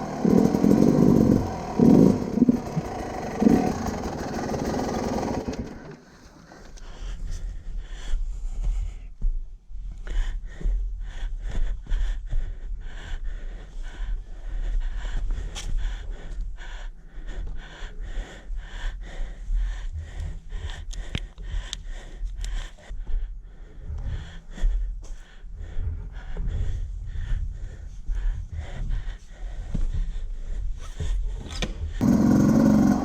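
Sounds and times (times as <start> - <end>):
wind and motorcycle engine rumble: 0.0 - 6.8
breathy huffs: 0.0 - 9.3, 9.9 - 33.0.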